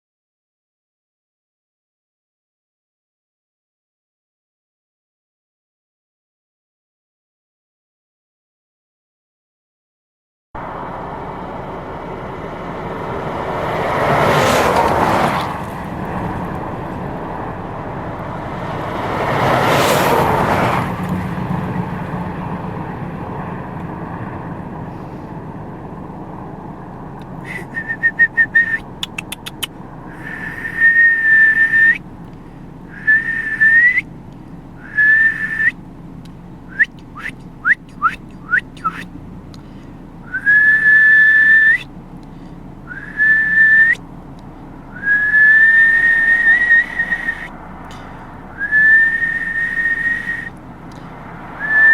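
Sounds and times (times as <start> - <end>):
vehicles passing by: 10.6 - 51.9
person whistling: 27.4 - 32.0, 32.9 - 34.1, 34.8 - 35.8, 36.7 - 39.1, 40.3 - 41.9, 42.9 - 44.0, 44.9 - 47.6, 48.6 - 50.6, 51.6 - 51.9.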